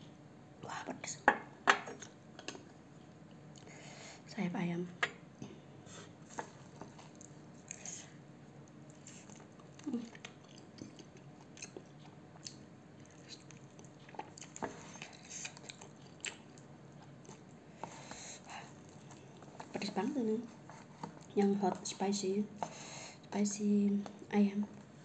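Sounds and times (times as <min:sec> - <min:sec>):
chewing with mouth clicks: 0:06.4 - 0:08.0, 0:08.6 - 0:17.6, 0:18.5 - 0:19.8.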